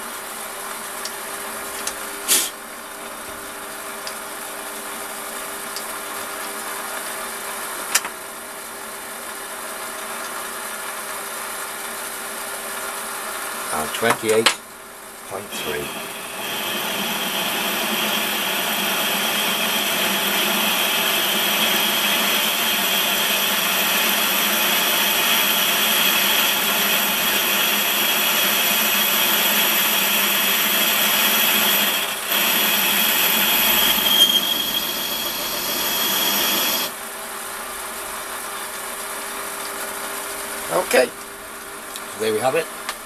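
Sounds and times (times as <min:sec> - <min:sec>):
metal lathe machining whine: 0:15.3 - 0:37.0.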